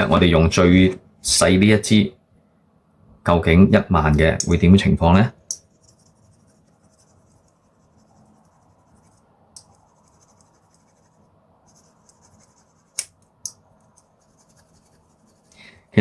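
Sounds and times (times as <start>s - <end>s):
file rubbing on plastic: 14.0s - 15.6s.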